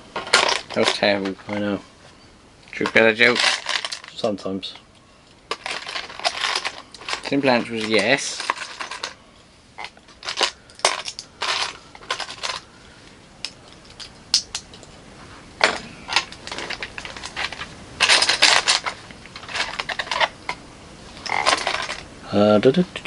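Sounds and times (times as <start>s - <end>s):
plastic bricks clicking: 9.8s - 12.6s.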